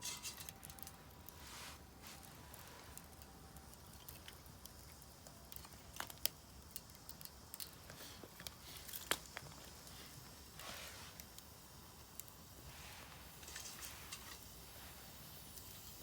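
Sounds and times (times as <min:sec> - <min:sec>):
firewood crackling and popping: 0:00.0 - 0:16.0.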